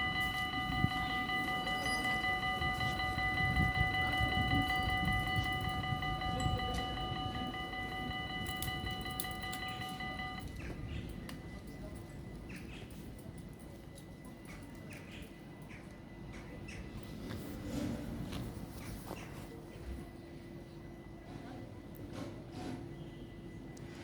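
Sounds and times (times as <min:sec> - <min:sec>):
railroad crossing bells ringing: 0:00.0 - 0:14.4.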